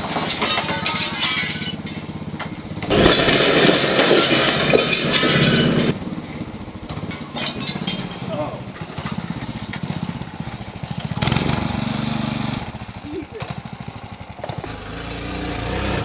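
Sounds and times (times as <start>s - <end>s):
motorcycle engine running: 8.6s - 16.0s.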